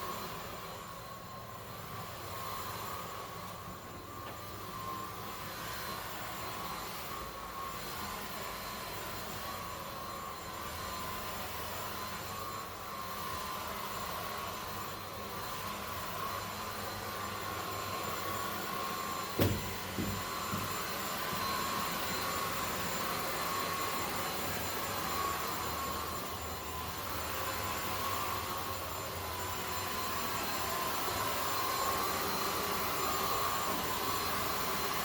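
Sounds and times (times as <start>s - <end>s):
vacuum cleaner motor whine: 0.0s - 35.0s
sharp knocks: 19.4s - 20.7s.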